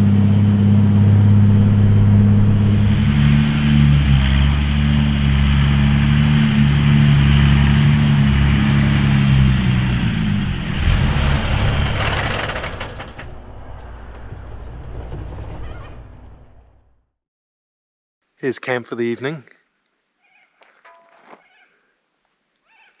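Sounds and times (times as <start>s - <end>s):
rough crackling engine rumble: 0.0s - 17.0s.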